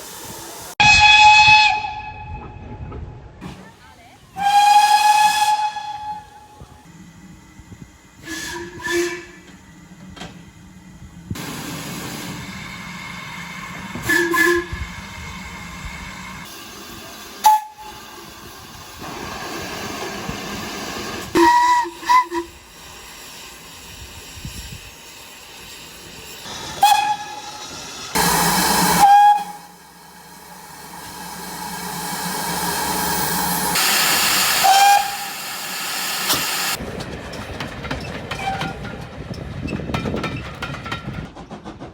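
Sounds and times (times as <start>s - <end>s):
hissing steam: 0.0s - 0.8s, 11.2s - 36.8s
steam locomotive whistle blasts: 0.8s - 2.6s, 4.4s - 6.6s, 8.2s - 9.5s, 14.0s - 14.9s, 17.4s - 18.0s, 21.3s - 22.7s, 26.7s - 30.2s, 31.1s - 36.8s
burst of escaping steam: 16.6s - 36.8s.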